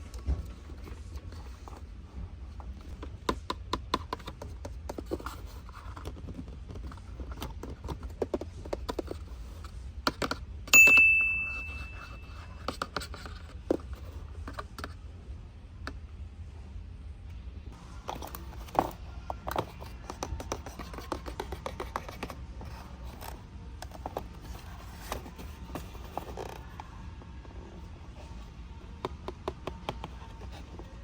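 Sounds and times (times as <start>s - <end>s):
bright ding: 10.7s - 12.3s
plastic toys and packaging handled: 17.9s - 31.0s.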